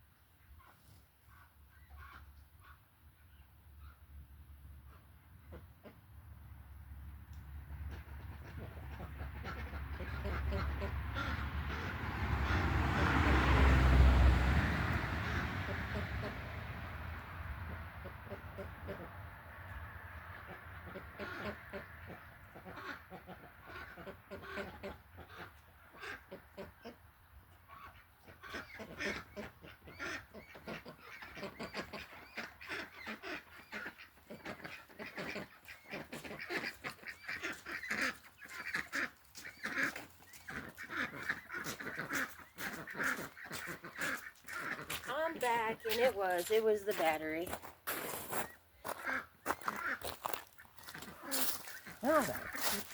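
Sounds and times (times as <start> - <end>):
fowl calling: 27.7 - 45.3, 48.3 - 52.9.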